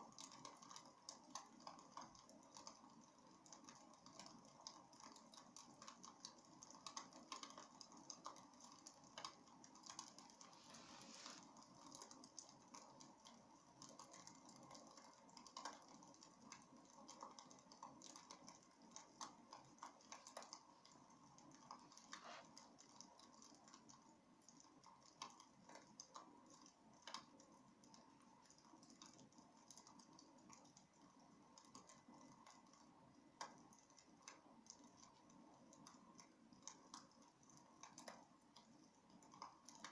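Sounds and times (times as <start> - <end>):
wood fire crackling: 0.2 - 24.0.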